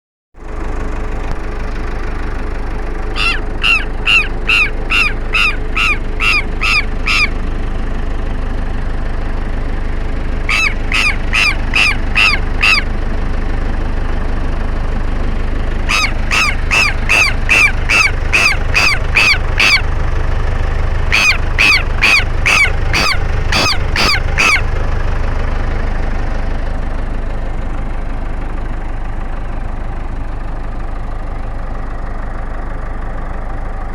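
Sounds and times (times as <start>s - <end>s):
lapwing harsh alarm calls: 3.2s - 7.6s, 10.4s - 13.0s, 15.8s - 20.0s, 21.0s - 24.8s.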